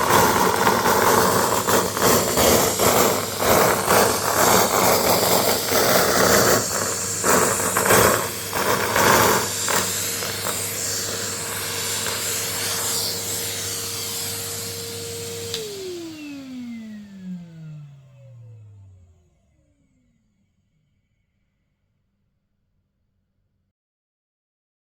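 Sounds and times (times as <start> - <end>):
confetti crackling and rattling: 0.0 - 12.2
vacuum cleaner running: 0.0 - 20.6
vacuum motor whine spinning down: 0.0 - 21.9.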